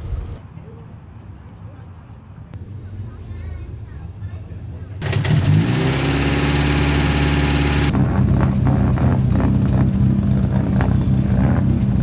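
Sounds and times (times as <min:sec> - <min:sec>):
rally car engine idling: 0:06.7 - 0:12.0.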